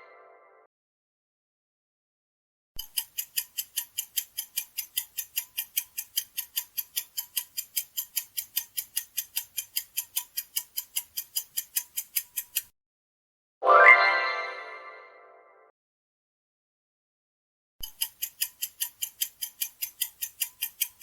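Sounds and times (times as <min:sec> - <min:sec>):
clock ticking: 0:02.8 - 0:12.7, 0:17.8 - 0:21.0.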